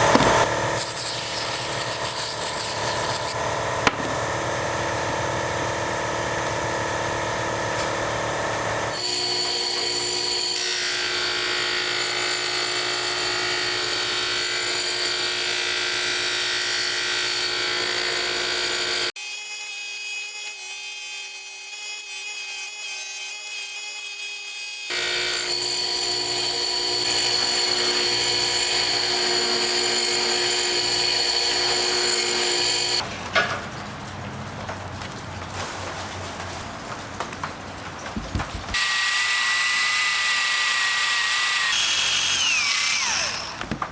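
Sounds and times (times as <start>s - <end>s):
power tool motor whine: 0.0s - 19.2s, 24.9s - 33.0s, 38.7s - 43.9s.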